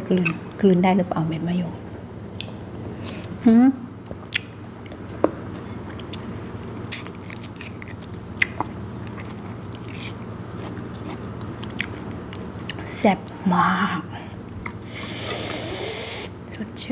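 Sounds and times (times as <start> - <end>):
sharp wet clicks and crunchy snaps: 2.3 - 2.6, 4.1 - 12.9
biting and chewing crisp food: 4.2 - 12.9.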